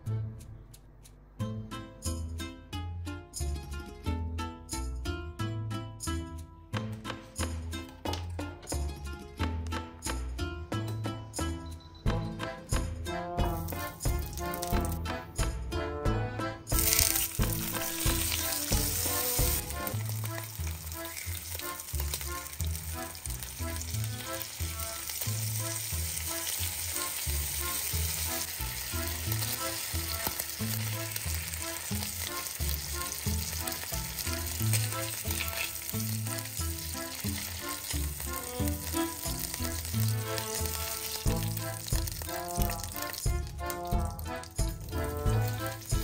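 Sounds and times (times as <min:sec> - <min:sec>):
meat sizzling in oil: 0:16.7 - 0:46.0.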